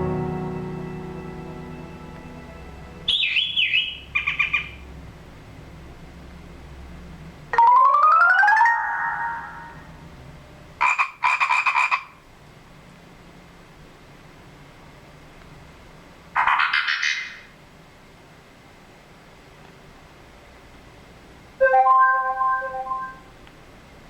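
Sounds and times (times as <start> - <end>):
electronic alert tones: 21.6 - 23.3.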